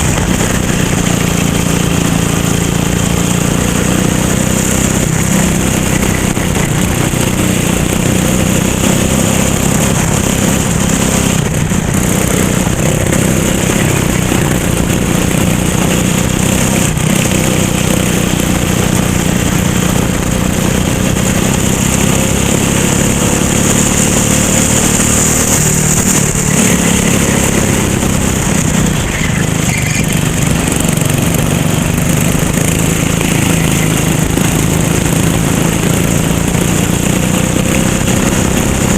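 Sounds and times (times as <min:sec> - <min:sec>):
kart engine running: 0:00.0 - 0:38.9.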